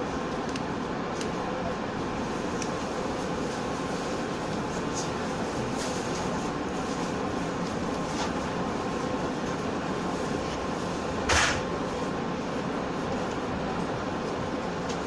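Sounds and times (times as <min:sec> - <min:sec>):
train running noise inside carriage: 0:00.0 - 0:15.0
short loud hiss: 0:11.3 - 0:11.7.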